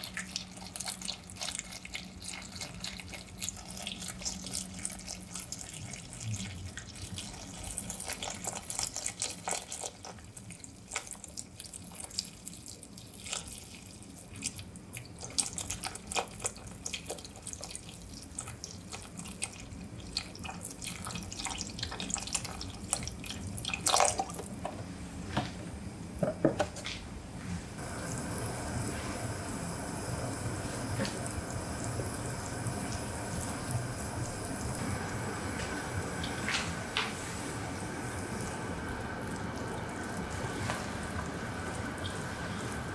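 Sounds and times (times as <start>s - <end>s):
steady hiss: 27.5s - 42.9s.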